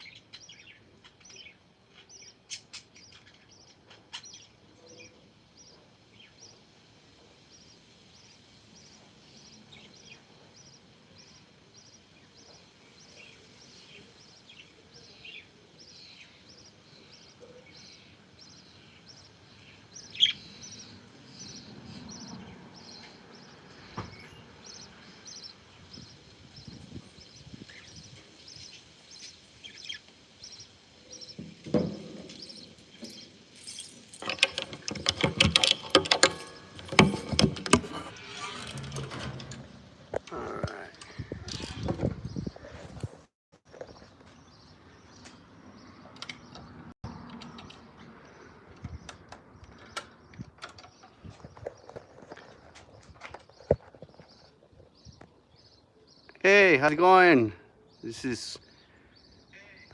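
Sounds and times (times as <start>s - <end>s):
parakeets chirping: 7.5s - 31.4s
clicking and rattling: 31.4s - 42.2s.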